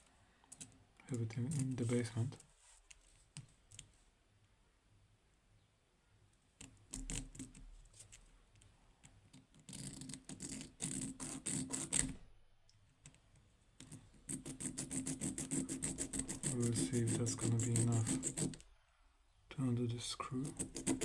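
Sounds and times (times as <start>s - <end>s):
hand file scraping a screw head: 9.7s - 12.2s, 13.8s - 18.7s, 20.4s - 21.0s.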